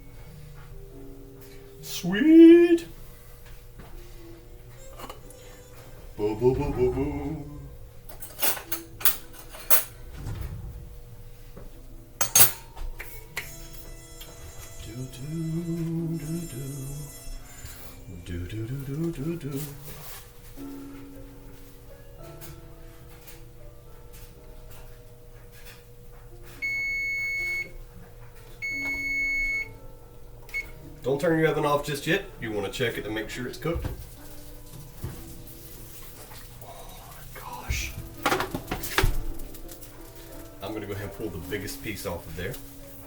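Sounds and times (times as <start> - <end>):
dishes and cutlery clattering: 8.1 - 10.2, 12.2 - 13.2, 38.1 - 41.2
oven timer beeping: 26.6 - 27.8, 28.6 - 29.8, 30.4 - 31.2.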